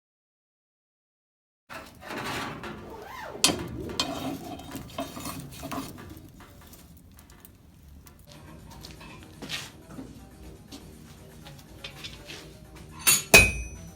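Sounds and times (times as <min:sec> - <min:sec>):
metal tools clinking: 0:01.7 - 0:08.3, 0:12.9 - 0:13.9.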